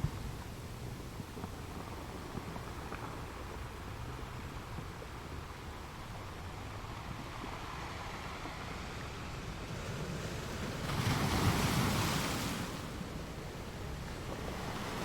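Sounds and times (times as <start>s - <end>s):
waves breaking against rocks: 9.3s - 15.0s.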